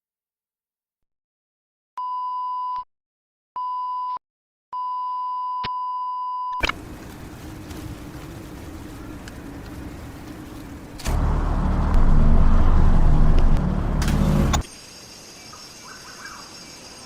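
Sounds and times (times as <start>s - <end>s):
steady rumbling noise: 6.7s - 14.6s
low hum: 6.8s - 14.6s.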